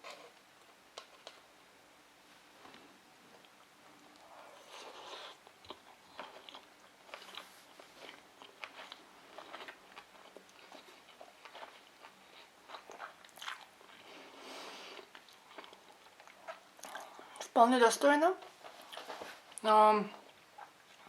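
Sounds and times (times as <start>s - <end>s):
chewing with wet mouth clicks: 5.1s - 14.0s, 15.0s - 17.5s.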